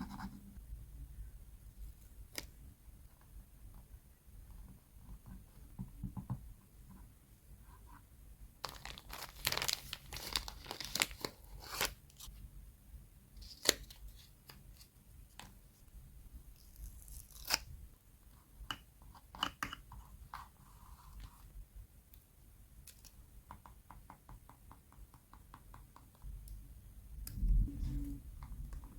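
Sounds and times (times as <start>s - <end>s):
paper rustling and tearing: 8.7s - 12.3s.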